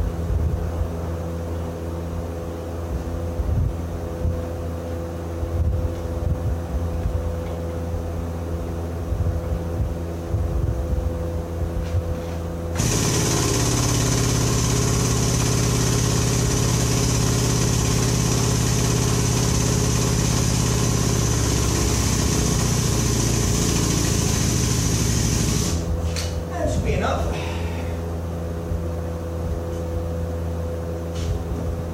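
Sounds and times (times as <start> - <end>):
engine running with strong hiss: 8.0 - 31.9
engine idling: 12.8 - 25.9.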